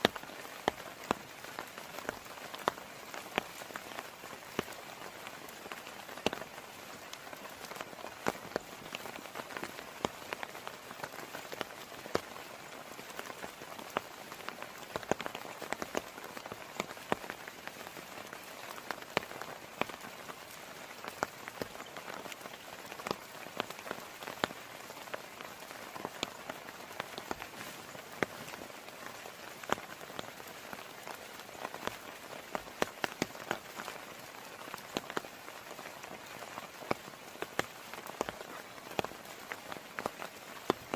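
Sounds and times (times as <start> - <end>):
heavy rain falling: 0.0 - 40.9
raindrops tapping: 0.0 - 40.9.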